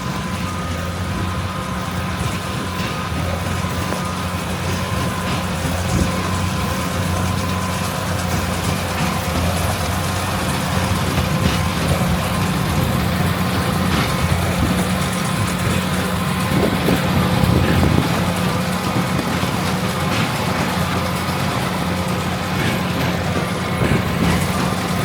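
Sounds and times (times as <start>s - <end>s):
diesel engine humming: 0.0s - 25.0s.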